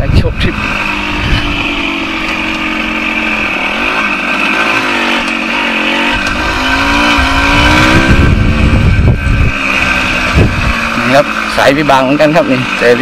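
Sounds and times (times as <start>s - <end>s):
wind rumble on microphone: 0.0s - 1.7s, 6.1s - 11.0s
motorcycle engine revving: 0.0s - 13.0s.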